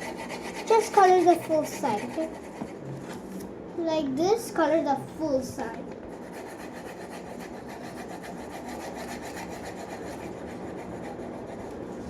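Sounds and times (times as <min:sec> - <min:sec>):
pencil shading on paper: 0:00.0 - 0:02.8, 0:06.1 - 0:12.0.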